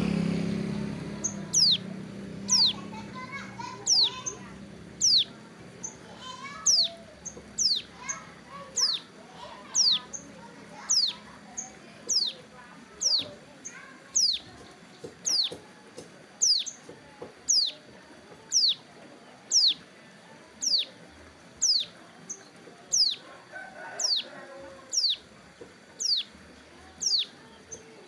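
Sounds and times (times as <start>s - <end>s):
bird downward-sweeping call: 1.2s - 1.9s, 2.5s - 2.9s, 3.8s - 6.0s.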